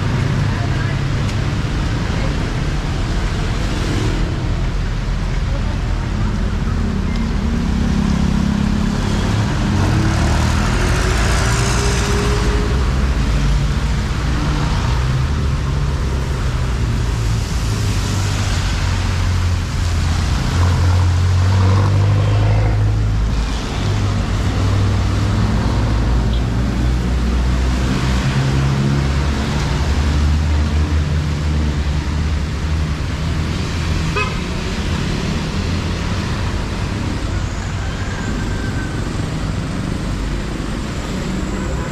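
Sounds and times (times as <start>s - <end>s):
vehicle engines passing: 0.0s - 41.9s
car horn tooting: 34.1s - 34.5s.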